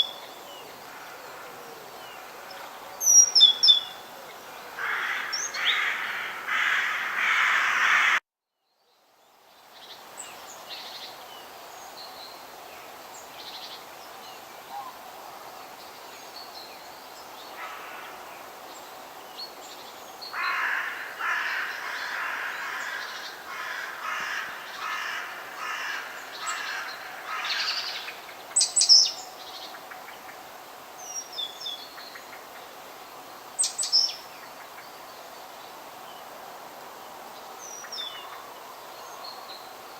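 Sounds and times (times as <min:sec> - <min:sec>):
faint steady background noise: 0:00.0 - 0:39.9
harsh repeated bird calls: 0:04.8 - 0:08.2
high chirps of small birds: 0:24.2 - 0:30.0.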